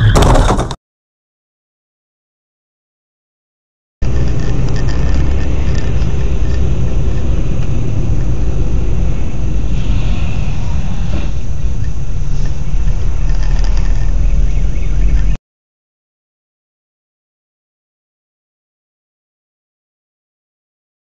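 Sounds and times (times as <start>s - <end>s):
car road and engine rumble: 4.0s - 15.4s.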